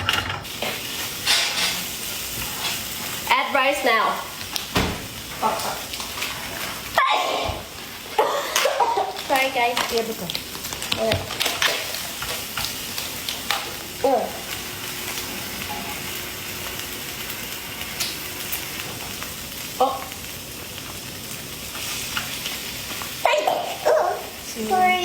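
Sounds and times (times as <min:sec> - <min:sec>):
food sizzling in a frying pan: 0:00.0 - 0:25.0.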